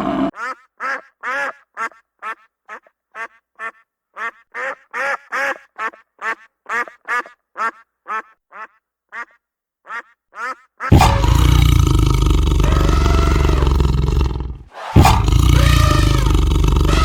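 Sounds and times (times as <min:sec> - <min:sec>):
animal giving short pitched calls: 0:10.4 - 0:17.0.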